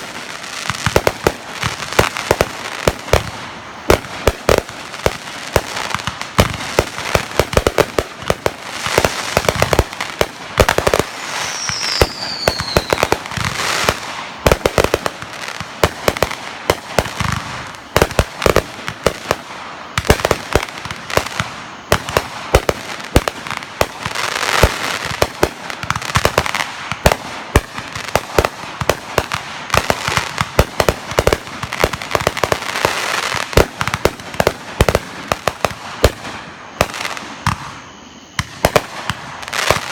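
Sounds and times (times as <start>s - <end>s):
fireworks crackling and banging: 0.0s - 39.9s
firework falling whistle: 8.8s - 14.6s, 19.9s - 25.2s, 35.5s - 39.9s.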